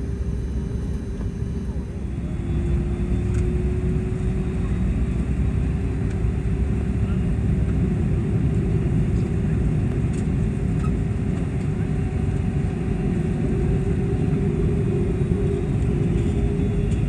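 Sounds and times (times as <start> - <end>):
faint steady hum: 0.0 - 6.3
airplane cabin low rumble: 0.0 - 17.0.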